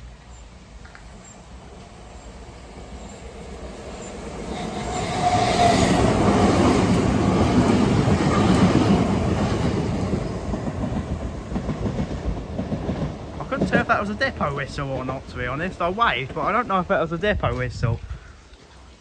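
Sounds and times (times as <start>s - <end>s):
train rumble and wheel clatter: 0.0s - 18.0s
train horn toot: 4.5s - 6.0s.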